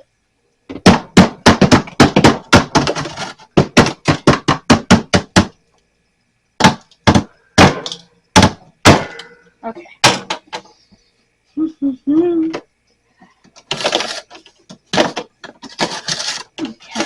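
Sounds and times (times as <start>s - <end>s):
sharp knocks: 0.7s - 5.5s, 6.6s - 9.4s.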